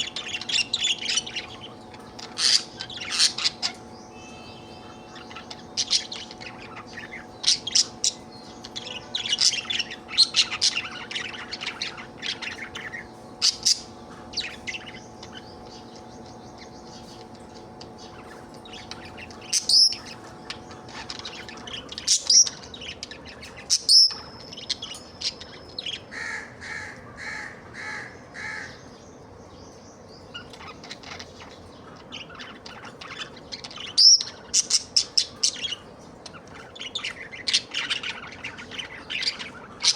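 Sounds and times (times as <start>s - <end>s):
budgerigar chirping and warbling: 0.0s - 28.8s, 30.4s - 39.9s
faint steady hum: 0.0s - 39.9s.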